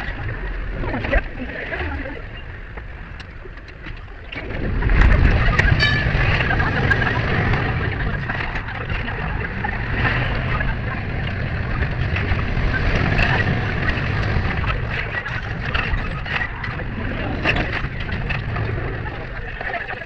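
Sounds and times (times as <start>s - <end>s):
background voices: 0.0s - 20.0s
tram rumbling on rails: 4.3s - 19.4s.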